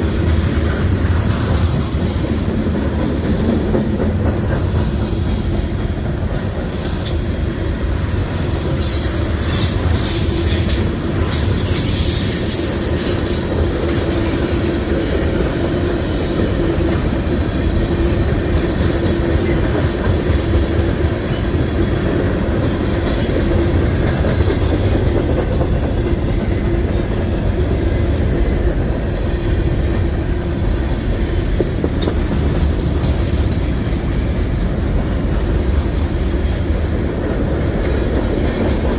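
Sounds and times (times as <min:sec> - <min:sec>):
clickety-clack over rail joints: 0:00.0 - 0:38.9
train wheels rumbling on rails: 0:00.0 - 0:38.9
high wheel squeal: 0:08.7 - 0:10.7.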